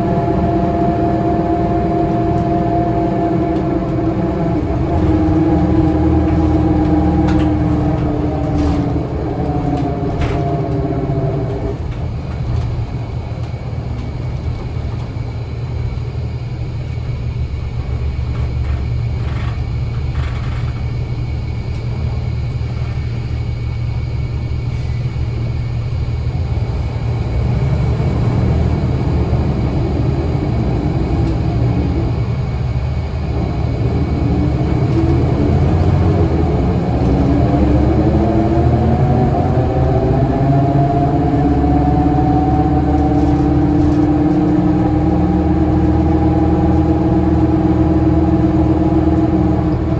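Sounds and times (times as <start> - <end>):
bus diesel engine rumbling: 0.0 - 49.9
bus driveline whine: 0.0 - 49.9.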